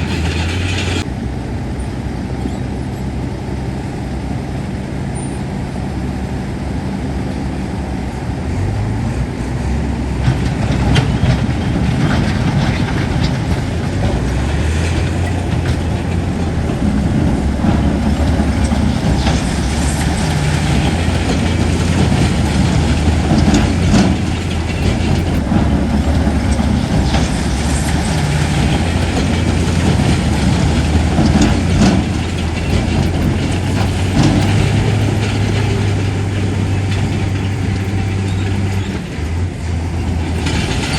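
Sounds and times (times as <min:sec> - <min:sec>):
diesel machinery engine running: 0:00.0 - 0:40.9
metallic clanks and knocks: 0:10.2 - 0:40.9.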